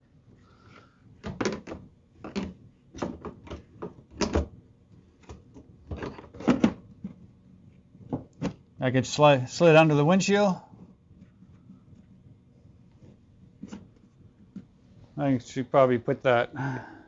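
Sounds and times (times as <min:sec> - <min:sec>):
plastic panel clacks and knocks: 0:01.2 - 0:04.6, 0:05.2 - 0:07.2.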